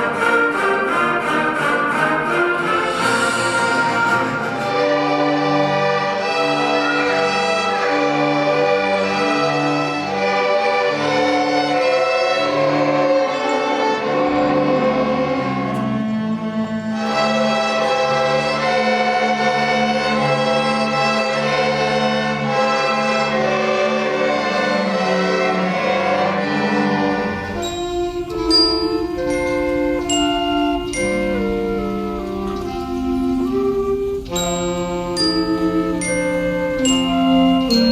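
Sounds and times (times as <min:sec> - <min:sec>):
orchestra with bowed strings: 0:00.0 - 0:37.9.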